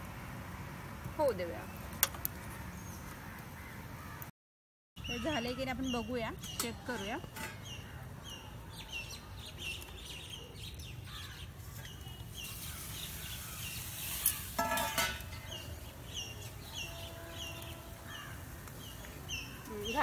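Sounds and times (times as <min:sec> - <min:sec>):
bird chirping: 0:05.0 - 0:14.6, 0:15.3 - 0:20.0
steel cookware clattering: 0:06.6 - 0:07.7, 0:14.3 - 0:15.5.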